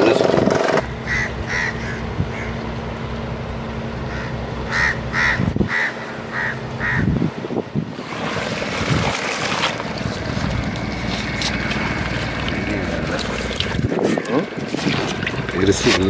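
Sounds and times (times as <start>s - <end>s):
bird calling: 0.8s - 2.8s, 4.0s - 7.2s
low steady hum: 0.8s - 16.0s.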